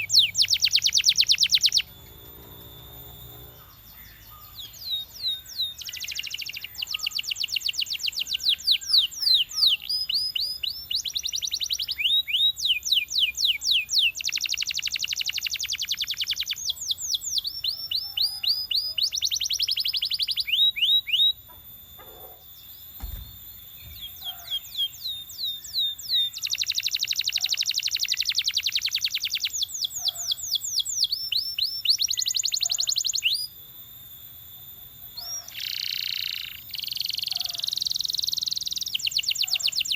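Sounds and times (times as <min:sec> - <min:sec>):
canary singing whistled trills: 0:00.0 - 0:33.6, 0:34.2 - 0:39.9
low thump: 0:23.0 - 0:24.2.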